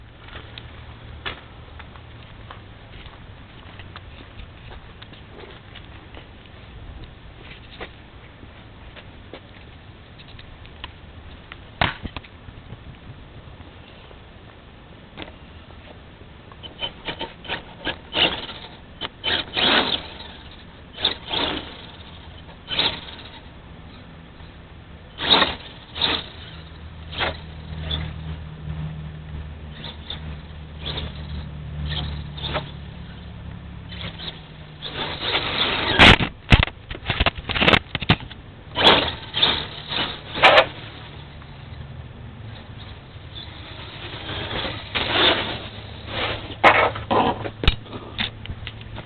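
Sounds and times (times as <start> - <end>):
rc truck motor whirring: 16.6 - 28.4, 29.7 - 41.8, 42.5 - 49.0.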